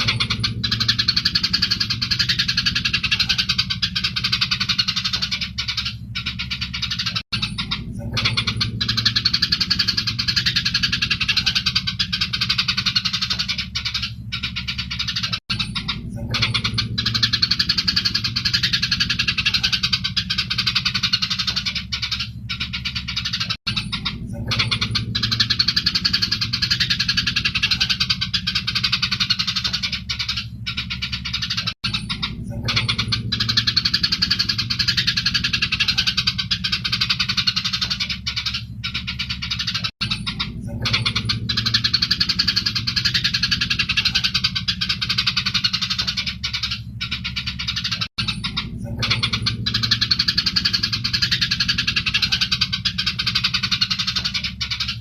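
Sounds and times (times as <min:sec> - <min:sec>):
low hum: 0:00.0 - 0:55.0
sparrows chirping and squabbling: 0:00.0 - 0:55.0.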